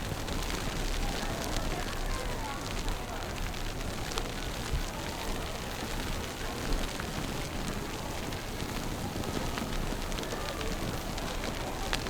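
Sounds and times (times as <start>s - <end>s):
faint crackles: 0.0s - 12.0s.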